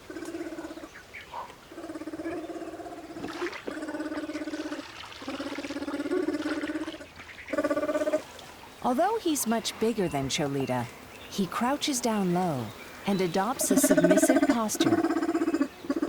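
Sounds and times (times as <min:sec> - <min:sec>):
bear pulsing calls: 0:00.0 - 0:16.0.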